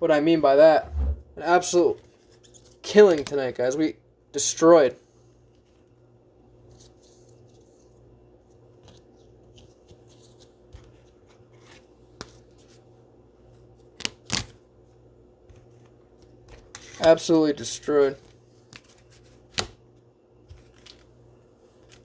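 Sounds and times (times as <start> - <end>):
cards sliding on a table: 0.8 - 1.3.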